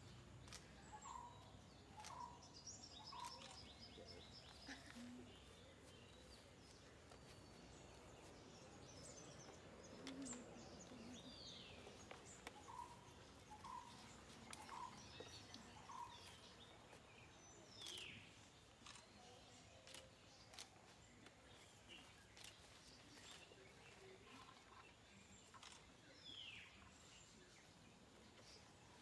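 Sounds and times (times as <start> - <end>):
faint clicks: 0.4 - 1.3, 9.4 - 11.1, 19.8 - 21.4.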